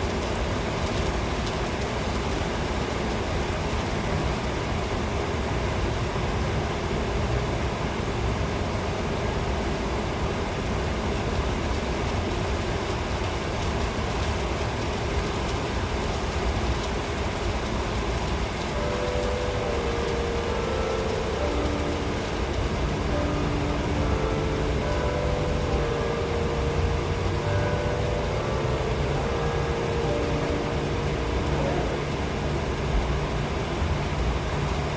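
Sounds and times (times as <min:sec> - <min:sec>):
steady rain: 0:00.0 - 0:34.9
faint humming tone: 0:18.5 - 0:34.8.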